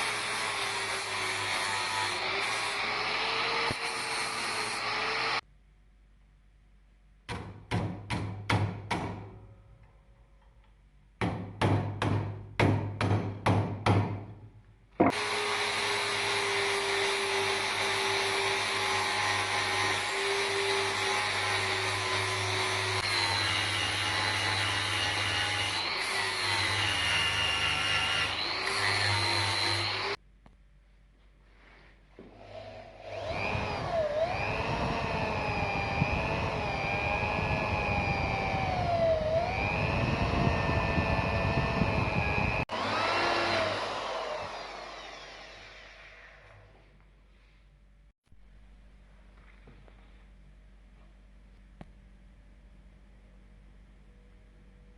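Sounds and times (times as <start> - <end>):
sharp knocks: 7.3 - 9.3, 11.2 - 14.4
electric power tool running: 15.1 - 30.2, 32.4 - 46.7.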